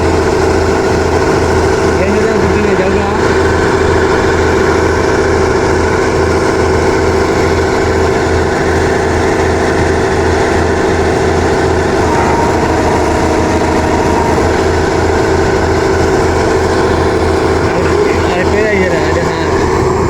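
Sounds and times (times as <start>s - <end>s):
diesel engine chugging: 0.0s - 20.0s.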